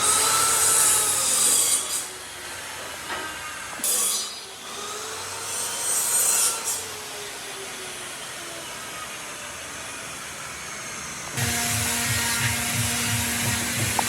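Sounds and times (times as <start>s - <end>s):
wood being sawn: 11.4s - 14.0s.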